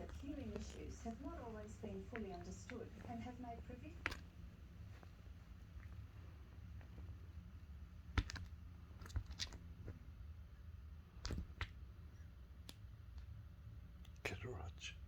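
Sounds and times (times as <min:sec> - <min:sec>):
faint clicks and taps: 0:00.0 - 0:10.5, 0:11.1 - 0:14.2
low steady hum: 0:00.0 - 0:15.0.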